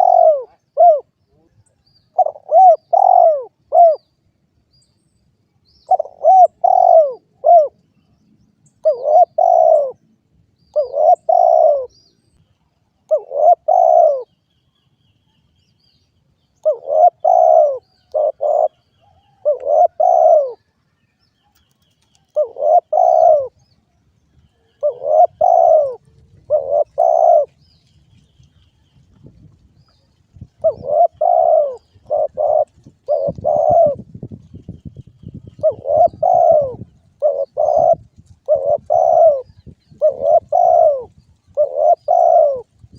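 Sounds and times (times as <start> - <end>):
dove cooing: 0.0 - 1.2, 2.1 - 4.0, 5.9 - 7.8, 8.8 - 10.0, 10.7 - 11.9, 13.1 - 14.3, 16.6 - 20.7, 22.3 - 23.6, 24.5 - 27.6, 30.5 - 34.2, 35.2 - 42.9
small birds chirping: 0.0 - 42.9.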